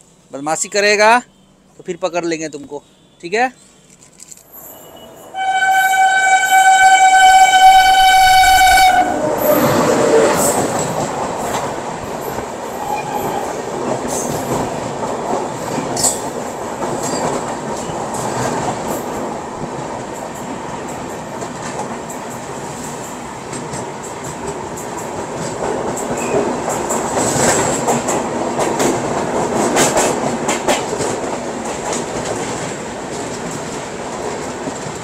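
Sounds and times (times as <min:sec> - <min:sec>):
train coaches rushing past: 0:04.5 - 0:35.0
train horn blast: 0:04.8 - 0:10.6
wheels clacking over rail joints: 0:09.2 - 0:35.0.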